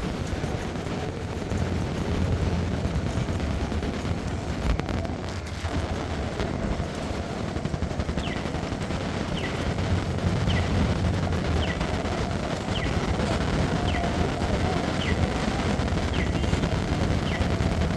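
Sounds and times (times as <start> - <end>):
low rumble: 0.0 - 17.9
rain drops crackling: 0.0 - 17.9.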